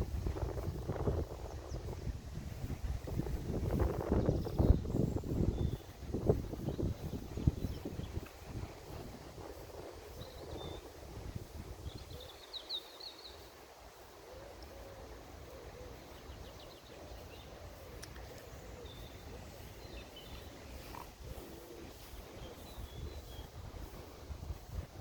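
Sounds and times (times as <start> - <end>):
songbirds trilling: 0.3 - 25.0.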